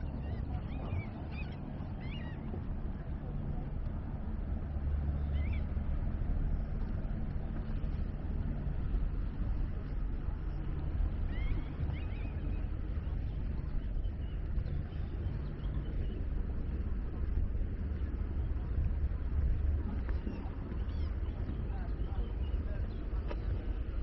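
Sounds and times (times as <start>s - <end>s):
birds chirping: 0.0s - 2.5s.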